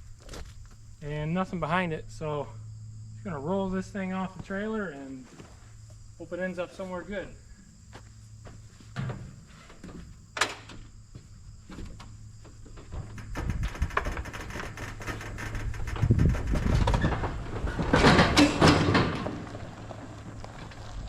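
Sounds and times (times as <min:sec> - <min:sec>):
rumble and clatter of tires: 0:00.0 - 0:21.0
tractor rolling off trailer: 0:11.8 - 0:21.0.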